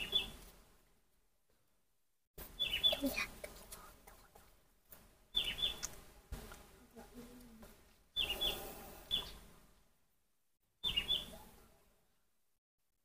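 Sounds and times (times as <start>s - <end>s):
bird chirping call: 0.0s - 0.4s, 2.6s - 3.2s, 5.3s - 5.9s, 8.2s - 9.5s, 10.8s - 11.5s.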